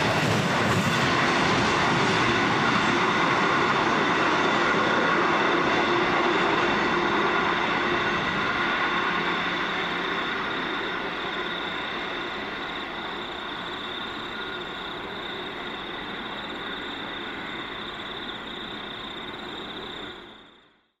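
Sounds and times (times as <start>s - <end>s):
distant freight train rumbling: 0.0s - 20.7s.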